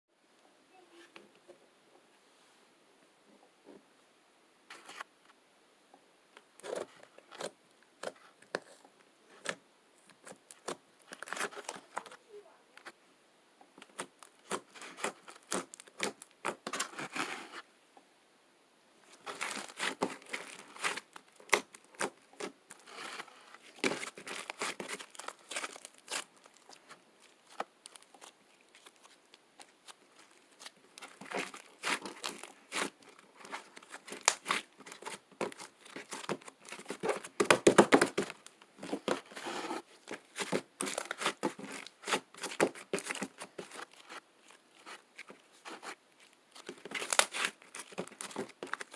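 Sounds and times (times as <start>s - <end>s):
slime crackling and tearing: 13.8s - 16.8s, 19.2s - 38.4s, 40.4s - 48.9s.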